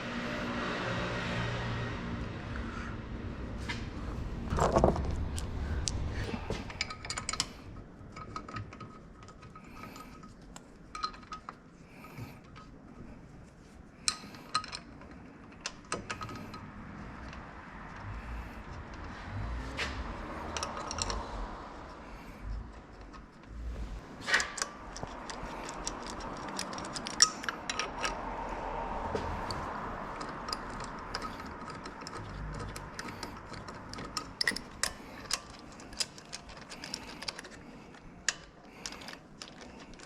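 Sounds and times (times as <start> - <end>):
low rumble: 1.1 - 7.8
metal tools clinking: 24.2 - 28.2, 29.2 - 40.0.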